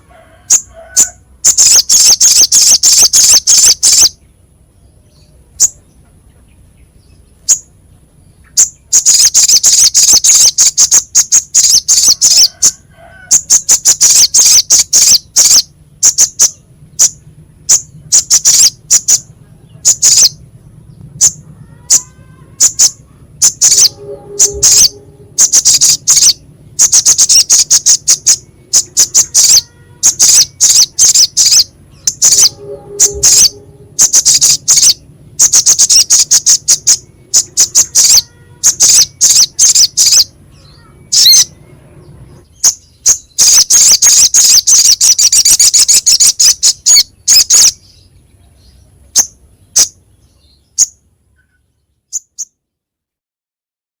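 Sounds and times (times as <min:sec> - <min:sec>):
bird singing harsh rapid chatter: 0:00.5 - 0:52.6.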